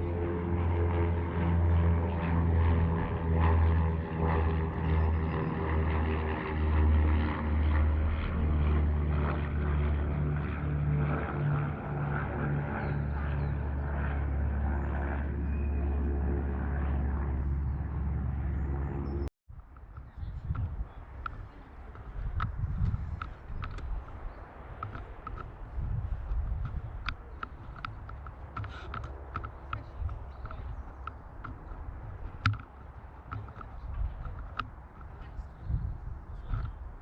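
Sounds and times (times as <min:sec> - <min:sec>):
engine-like low hum: 0:00.0 - 0:37.0.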